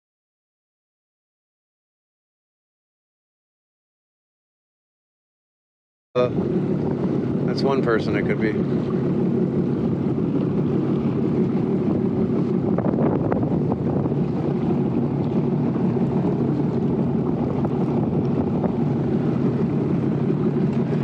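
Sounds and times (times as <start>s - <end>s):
watercraft engine running: 6.2s - 21.0s
wind buffeting microphone: 6.2s - 21.0s.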